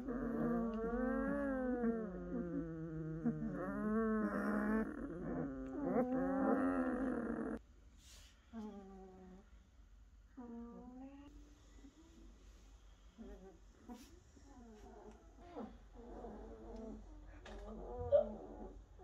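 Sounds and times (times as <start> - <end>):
puppies whining and crying: 0.0 - 7.6, 17.6 - 18.8.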